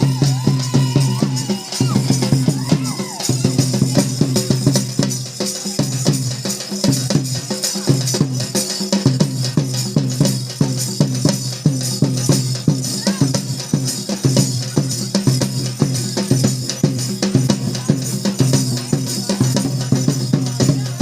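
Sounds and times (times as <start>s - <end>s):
fast drum beat: 0.0s - 21.0s.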